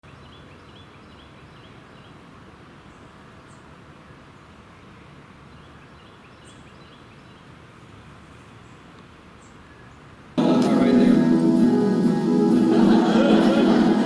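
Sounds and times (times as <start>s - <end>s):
faint bird chirps: 2.8s - 7.6s.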